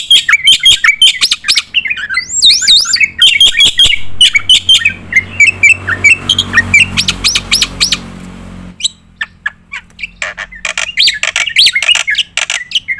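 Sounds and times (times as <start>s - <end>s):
myna bird singing: 0.0s - 12.9s.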